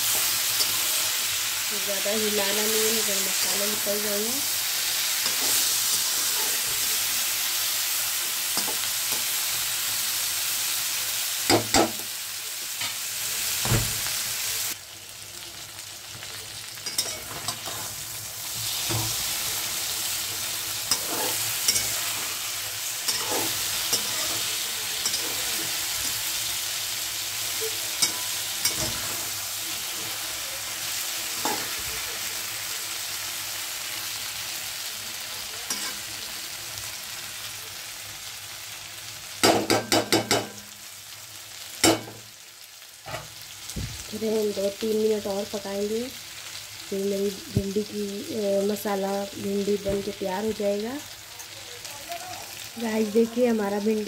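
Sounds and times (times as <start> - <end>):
vegetables sizzling in hot oil: 0.0 - 54.0
metal spatula scraping pan: 5.2 - 6.9, 20.7 - 26.3.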